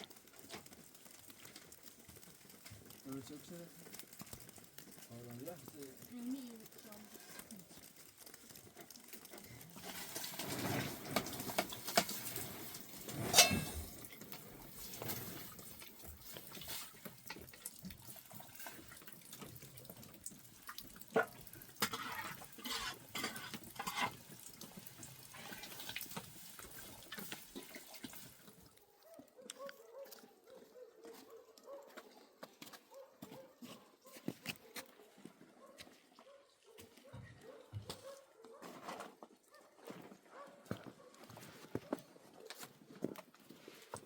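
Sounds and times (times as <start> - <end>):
water splashing and trickling: 0.0 - 41.7
knocks and clinks: 13.3 - 14.2.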